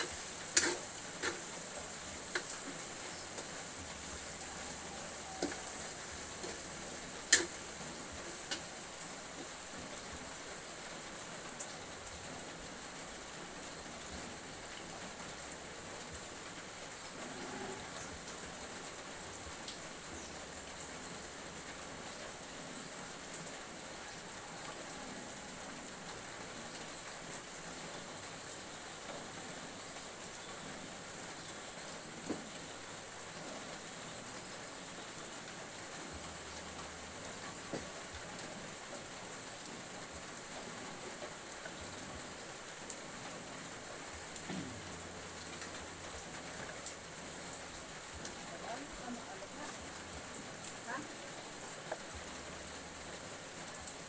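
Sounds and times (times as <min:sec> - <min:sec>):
food sizzling in a wok: 0:00.0 - 0:54.0
fire pops: 0:00.1 - 0:01.5, 0:07.3 - 0:07.6.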